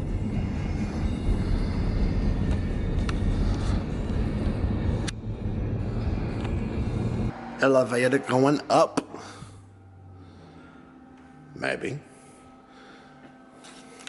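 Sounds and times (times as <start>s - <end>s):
vehicle rumble in motion: 0.0s - 7.7s.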